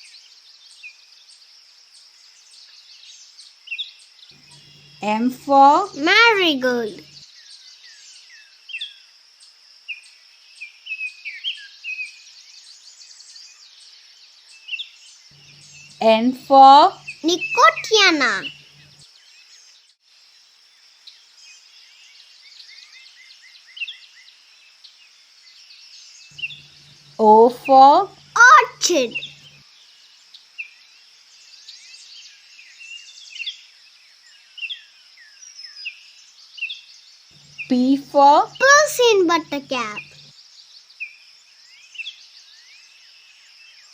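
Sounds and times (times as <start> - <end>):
small birds chirping: 2.2 - 9.0, 11.3 - 19.8, 25.4 - 43.9
birds chirping: 15.4 - 19.0, 26.3 - 29.6, 37.4 - 40.3.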